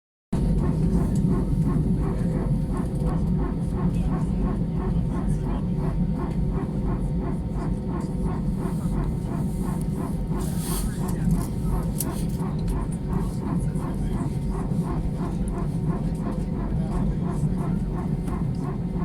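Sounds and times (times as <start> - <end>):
low mechanical rumble: 0.4 - 19.0.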